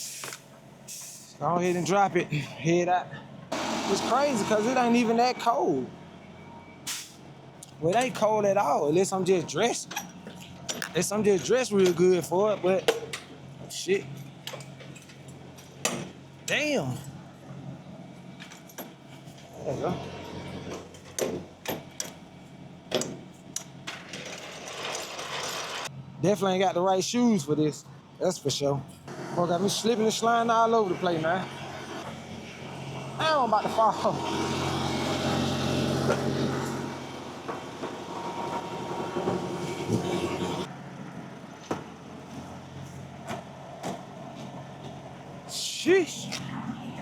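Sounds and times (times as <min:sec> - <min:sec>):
diesel truck engine idling: 0:02.7 - 0:09.6.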